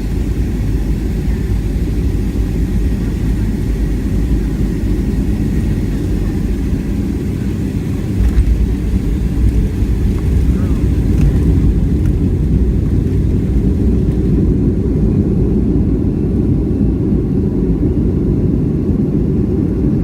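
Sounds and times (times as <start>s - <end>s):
low rumble of engines and airflow: 0.0s - 20.0s.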